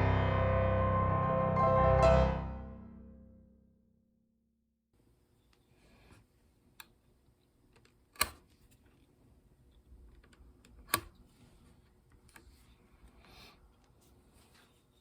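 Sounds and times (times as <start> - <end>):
faint handling sounds at a bench: 5.3 - 15.0.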